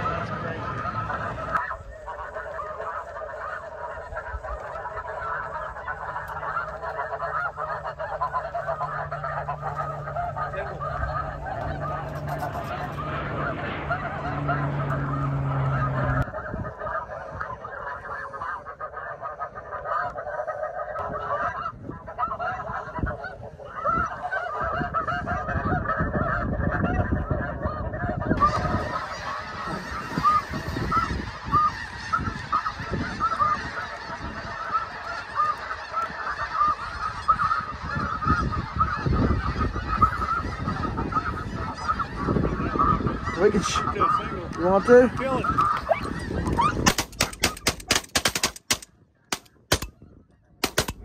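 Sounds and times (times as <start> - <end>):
geese honking: 0.0 - 51.0
low rumble: 8.3 - 16.4.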